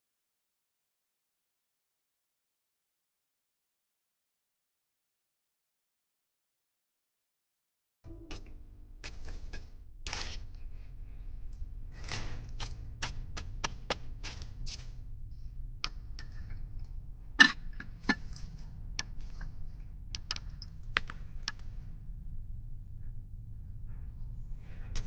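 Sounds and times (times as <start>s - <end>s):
steady low rumble: 8.1s - 25.0s
sharp taps and clicks: 20.2s - 21.6s.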